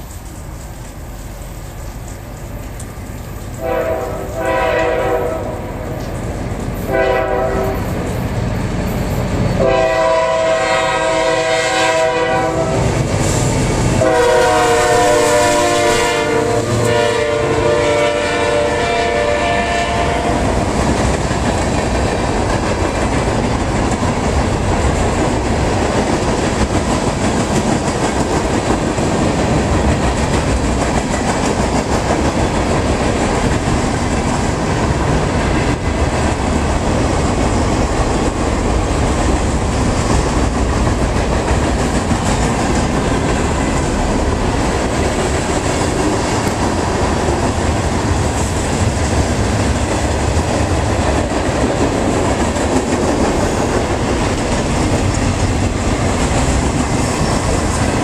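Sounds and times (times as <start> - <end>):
locomotive horn blasts: 3.6 - 5.7, 6.9 - 7.9, 9.6 - 13.0, 14.0 - 20.4.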